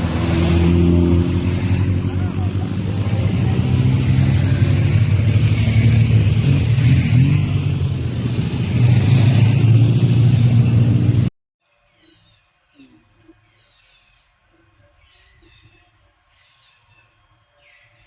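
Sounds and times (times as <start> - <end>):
vehicle engine with road noise: 0.0 - 11.3.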